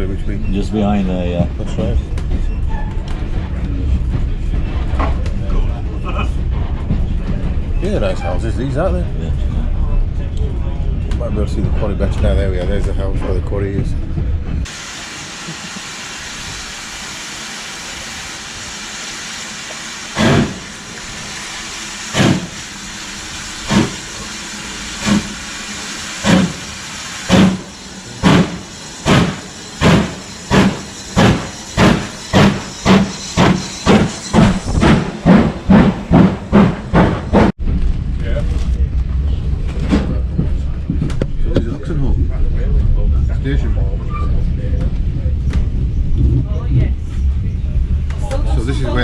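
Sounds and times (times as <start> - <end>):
steam locomotive chuffing: 0.0 - 37.6
steady steam hiss: 14.7 - 34.4.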